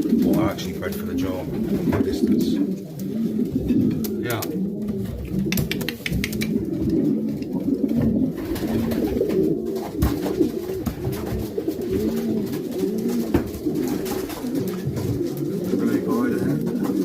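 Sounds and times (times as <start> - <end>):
pigeons cooing: 0.0 - 17.0
short sharp taps: 5.5 - 6.6.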